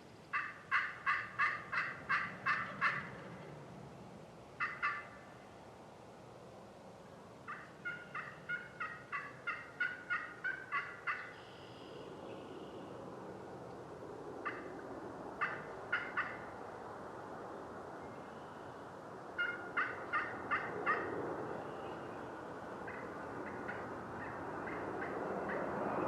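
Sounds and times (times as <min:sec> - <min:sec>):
turkey yelping: 0:00.3 - 0:03.3, 0:04.6 - 0:05.2, 0:07.5 - 0:11.4, 0:15.4 - 0:16.4, 0:19.4 - 0:21.1.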